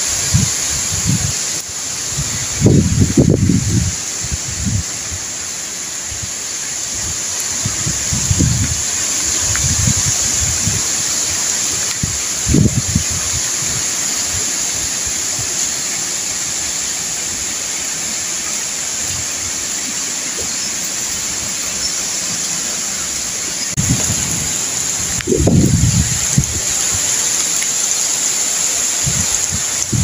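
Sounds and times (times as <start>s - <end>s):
wind buffeting microphone: 0.0s - 5.4s, 6.0s - 15.8s, 23.7s - 28.0s, 28.6s - 30.0s
strong wind through palm trees: 0.0s - 30.0s.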